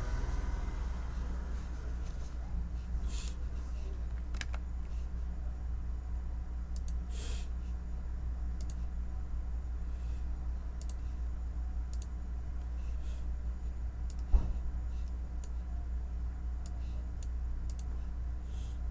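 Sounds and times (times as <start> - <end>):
steady low hum: 0.0 - 18.9
computer keyboard clicks: 4.0 - 4.7, 6.7 - 7.0, 8.6 - 8.8, 11.9 - 12.1, 14.1 - 14.3, 16.6 - 17.9.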